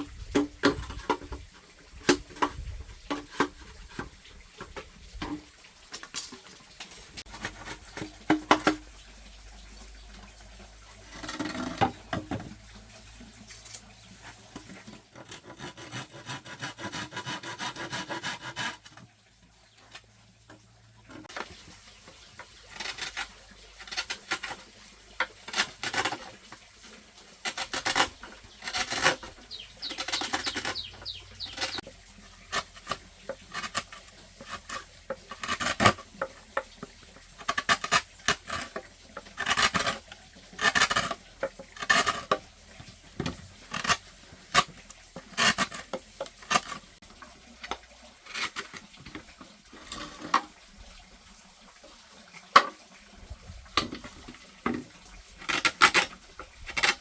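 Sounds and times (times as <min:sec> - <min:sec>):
hand scraping and rubbing: 0:27.7 - 0:31.8.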